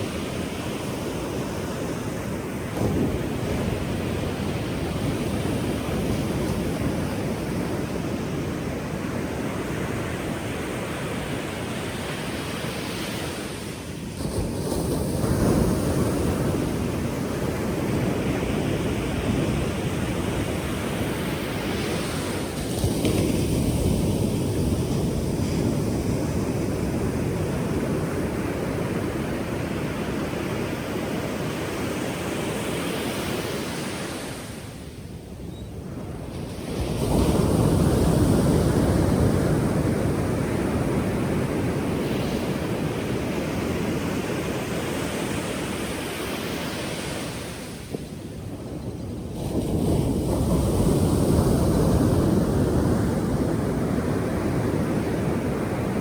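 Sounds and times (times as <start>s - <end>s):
waves breaking: 0.0s - 56.0s.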